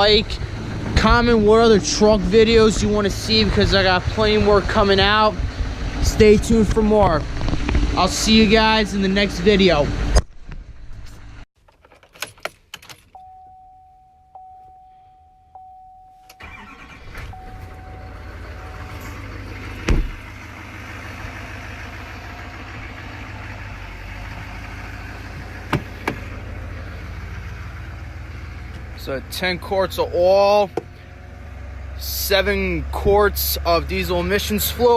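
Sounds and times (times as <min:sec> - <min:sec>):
diesel engine starting and idling: 0:00.0 - 0:10.2, 0:12.9 - 0:34.9
steady electronic tone: 0:17.1 - 0:19.4.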